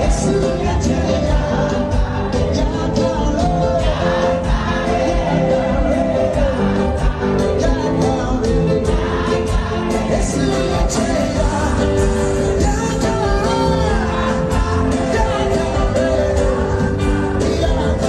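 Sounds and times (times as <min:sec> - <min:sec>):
band with drums: 0:00.0 - 0:18.0
choir singing gospel song: 0:00.0 - 0:18.0.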